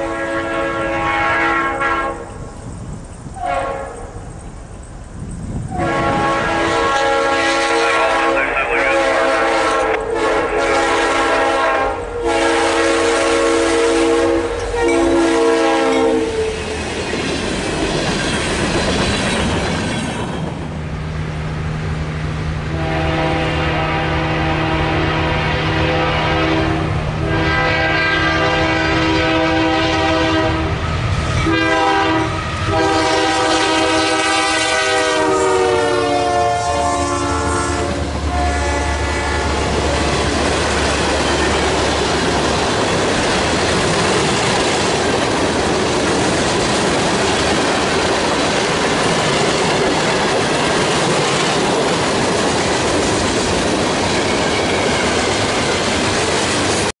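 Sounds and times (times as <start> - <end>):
locomotive chime horn blasts: 0.0 - 2.4, 3.4 - 4.2, 5.7 - 16.6, 22.7 - 30.8, 31.4 - 40.3
diesel locomotive engines: 0.0 - 56.9
train wheel clatter: 14.5 - 20.9, 39.5 - 56.9.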